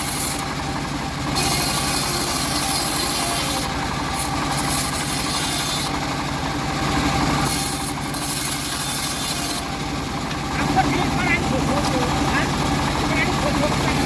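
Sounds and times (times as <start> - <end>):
sawmill engine drone: 0.0 - 14.0.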